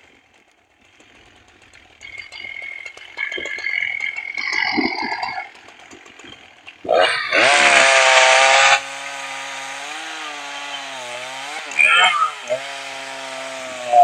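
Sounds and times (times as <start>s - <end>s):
chainsaw revving: 0.0s - 14.0s.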